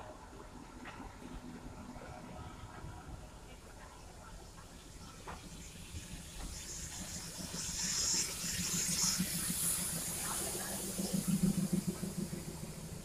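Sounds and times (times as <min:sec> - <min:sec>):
passenger train running: 0:00.0 - 0:13.0.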